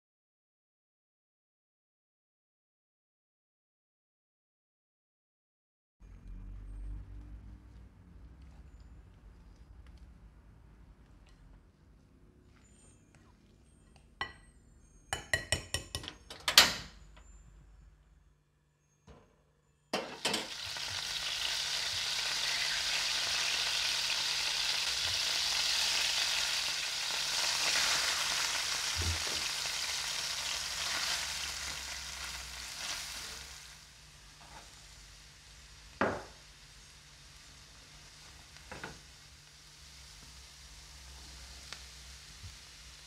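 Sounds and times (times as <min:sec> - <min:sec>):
onion and garlic sizzling in pan: 0:20.0 - 0:43.0.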